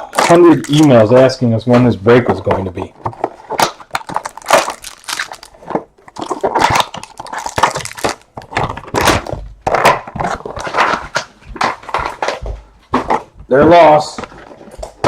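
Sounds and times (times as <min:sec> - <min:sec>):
packaging crinkling and tearing: 0:03.1 - 0:12.2.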